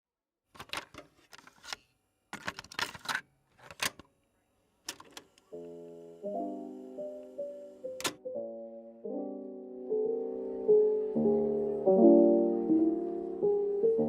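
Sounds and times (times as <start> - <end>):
objects clicking and rustling: 0.5 - 4.1
soft piano music: 5.5 - 14.0.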